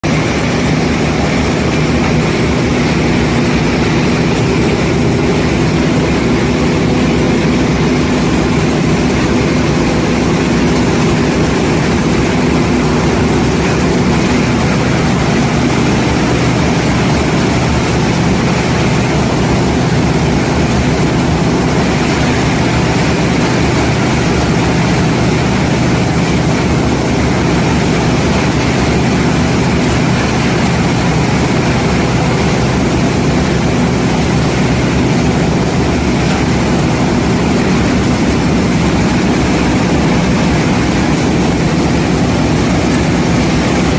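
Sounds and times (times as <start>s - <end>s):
baling machine humming: 0.0s - 43.9s.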